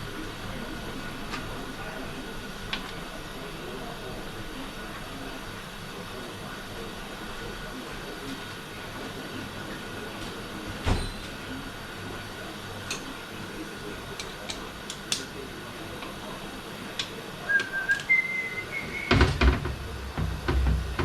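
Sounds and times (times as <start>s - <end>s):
short whistle-like tones: 17.4s - 19.2s
louder knock: 19.1s - 21.0s.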